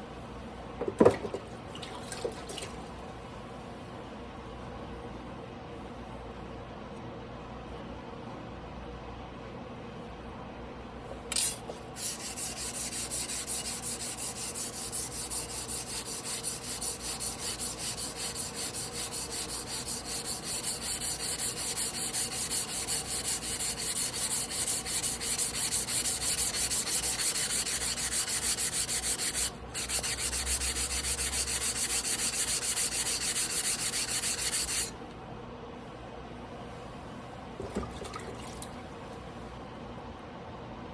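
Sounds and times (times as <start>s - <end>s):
blade scraping on whetstone: 11.4s - 34.9s.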